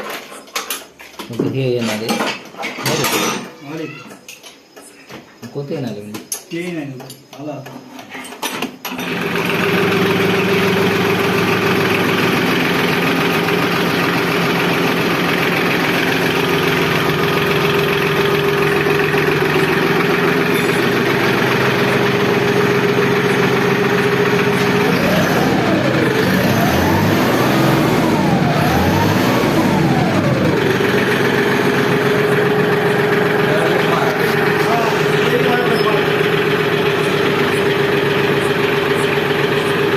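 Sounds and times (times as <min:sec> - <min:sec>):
tractor diesel engine running: 0:08.9 - 0:39.9
tractor engine revving: 0:08.9 - 0:39.9.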